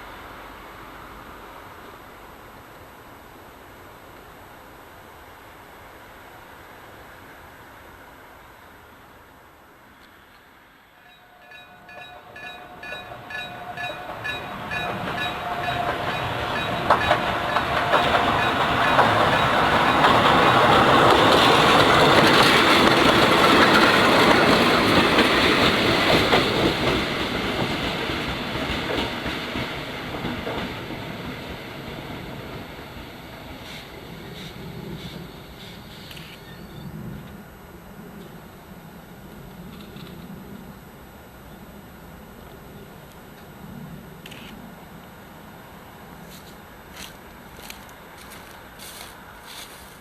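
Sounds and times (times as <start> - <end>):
electric train passing: 0.0 - 50.0
level crossing bell ringing: 11.1 - 19.6
wheels clattering over rail joints: 11.4 - 31.2.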